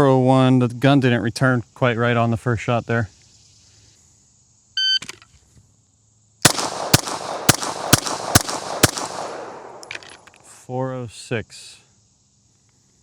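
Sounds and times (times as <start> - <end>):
handgun shots echoing: 6.4 - 10.3.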